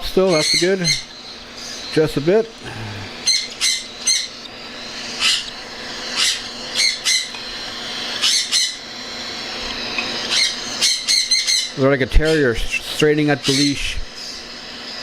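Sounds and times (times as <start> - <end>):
chicks begging screeches: 0.2 - 2.1, 3.0 - 9.0, 10.2 - 12.6, 13.4 - 14.4.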